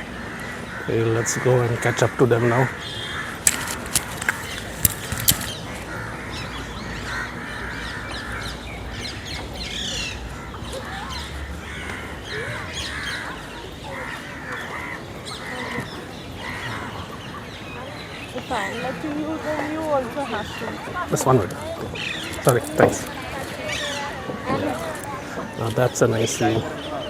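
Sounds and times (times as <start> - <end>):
crows cawing: 0.0 - 9.0, 9.8 - 17.3
bird calls: 0.0 - 27.0
sharp clicks: 3.4 - 5.6.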